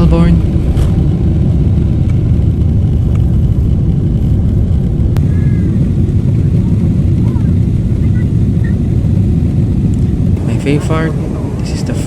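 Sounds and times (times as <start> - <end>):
jet engine cabin roar: 0.0 - 12.0.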